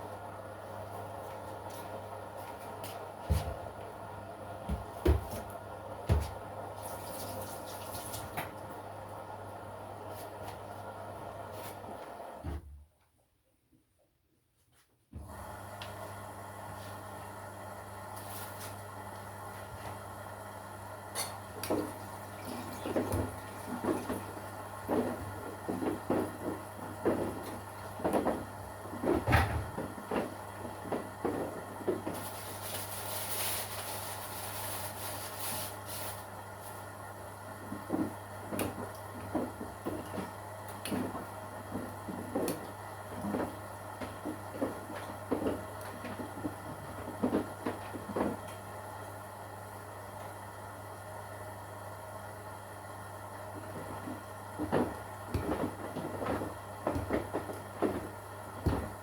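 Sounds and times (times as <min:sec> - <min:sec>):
washing machine hum: 0:00.0 - 0:13.0, 0:15.1 - 0:59.0
laundry tumbling in drum: 0:21.6 - 0:36.6, 0:37.5 - 0:49.0, 0:53.3 - 0:59.0.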